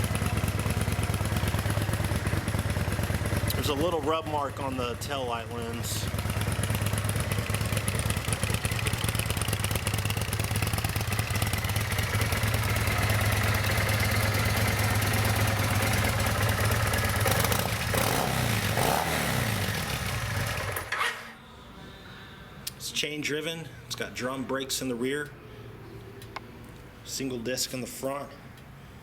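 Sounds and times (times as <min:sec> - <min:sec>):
motorcycle engine idling: 0:00.0 - 0:20.9.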